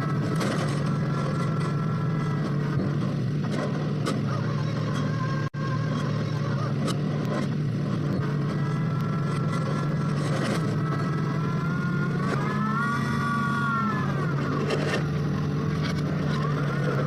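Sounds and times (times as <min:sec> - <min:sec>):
drilling machine engine running: 0:00.0 - 0:17.0
whining tone: 0:00.0 - 0:17.0.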